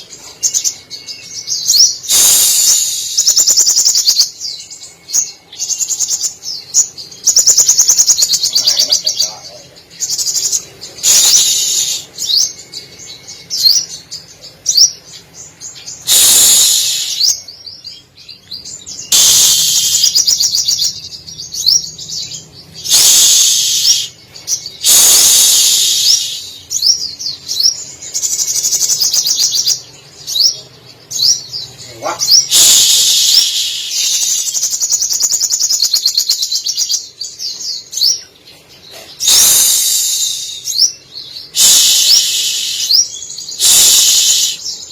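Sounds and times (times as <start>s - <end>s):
bird singing rapid chattering: 0.0s - 44.9s
mimicked bird phrases: 7.3s - 12.4s, 28.4s - 36.3s.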